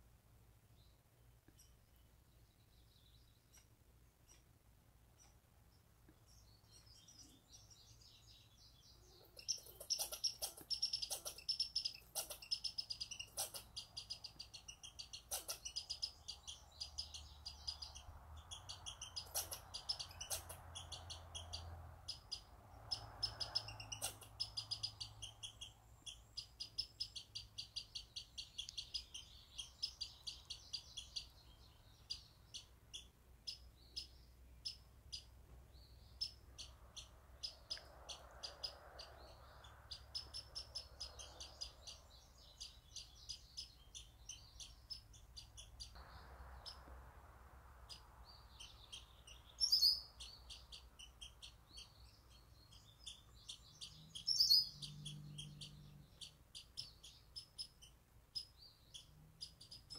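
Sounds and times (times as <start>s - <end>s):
songbirds chirping: 0.0s - 59.9s
loud bird calls: 6.9s - 35.3s.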